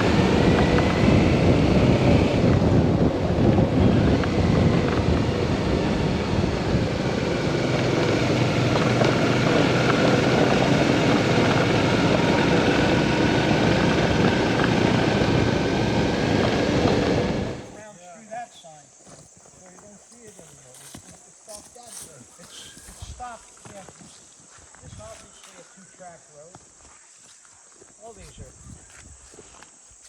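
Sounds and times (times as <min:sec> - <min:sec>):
motorcycle running: 0:00.0 - 0:17.8
wind rushing over microphone: 0:00.0 - 0:17.8, 0:24.8 - 0:25.2, 0:28.3 - 0:29.2.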